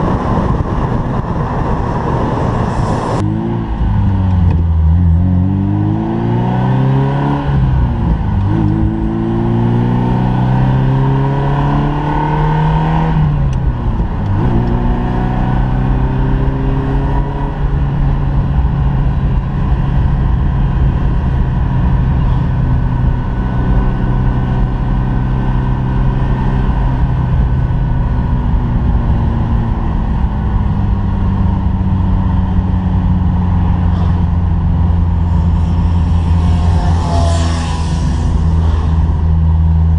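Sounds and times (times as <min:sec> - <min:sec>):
car engine accelerating: 0:00.0 - 0:39.9
road and wind noise: 0:00.0 - 0:39.9.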